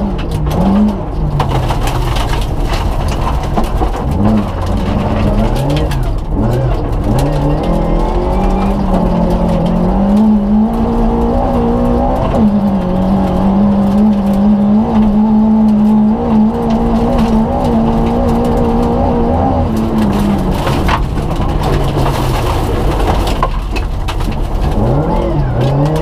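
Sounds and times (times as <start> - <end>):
gravel clicking under car: 0.0 - 26.0
rally car engine revving hard: 0.0 - 26.0.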